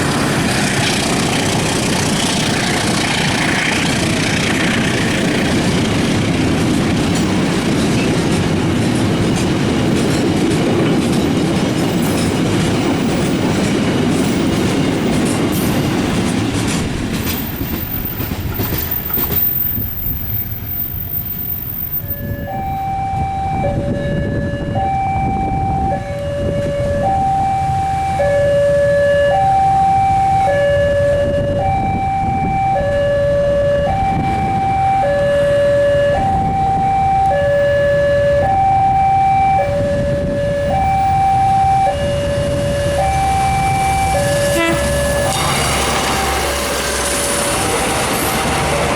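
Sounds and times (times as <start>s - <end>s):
train rumble and wheel clatter: 0.0s - 48.9s
two-tone warning signal: 20.0s - 48.4s.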